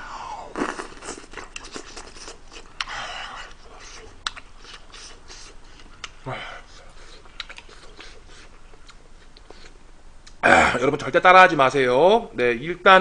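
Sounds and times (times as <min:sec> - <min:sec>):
man chewing and smacking: 0:00.5 - 0:10.4.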